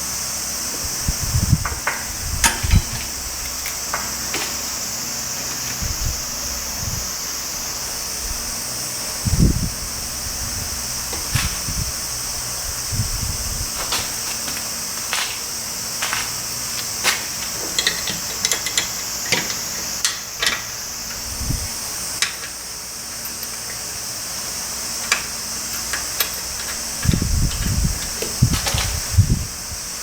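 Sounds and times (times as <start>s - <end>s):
steady high hiss: 0.0s - 30.0s
hand tools clinking: 1.6s - 4.7s, 13.8s - 20.8s.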